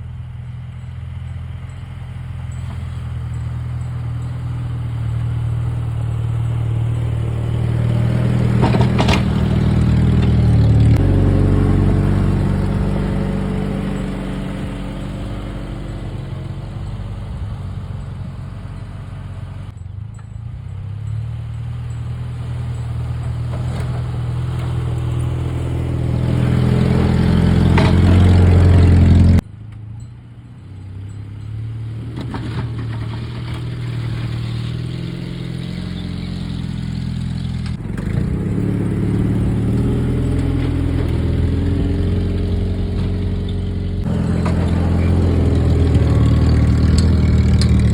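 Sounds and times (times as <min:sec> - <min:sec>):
jeep engine revving under load: 0:04.6 - 0:19.8, 0:23.0 - 0:29.4, 0:32.2 - 0:47.9.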